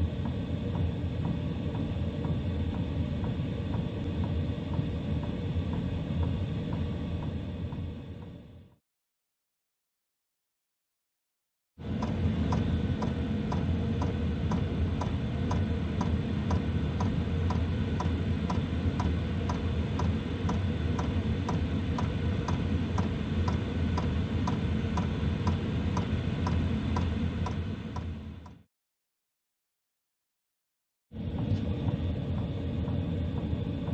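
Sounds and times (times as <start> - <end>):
blower fan humming: 11.8 - 28.6, 31.2 - 33.9.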